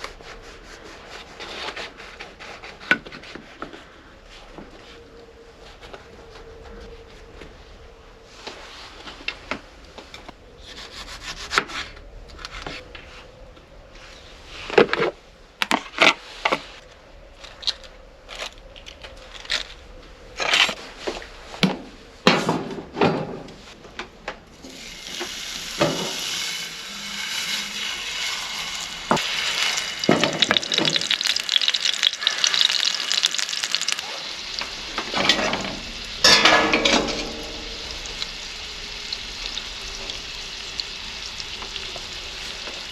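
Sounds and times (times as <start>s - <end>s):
utensil scraping a pan: 24.6s - 33.2s, 35.0s - 38.2s
food sizzling in a pan: 24.6s - 42.9s.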